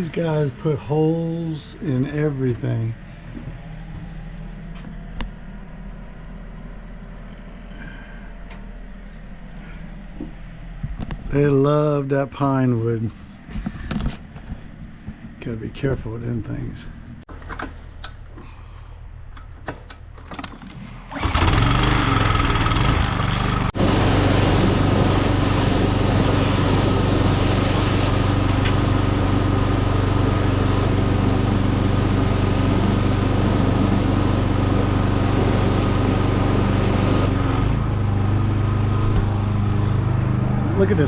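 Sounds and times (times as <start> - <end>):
engine starting and running: 19.3 - 41.0.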